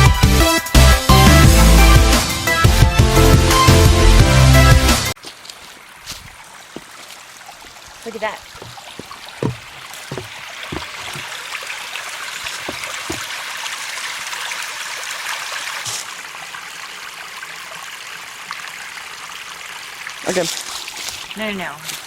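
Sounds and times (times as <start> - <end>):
creek water rushing over rocks: 5.2 - 16.3, 19.7 - 22.0
soft low knocks: 8.6 - 11.3.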